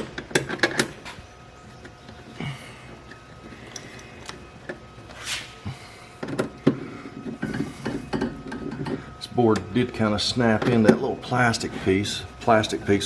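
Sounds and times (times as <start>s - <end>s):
brief scrape: 5.2s - 5.6s.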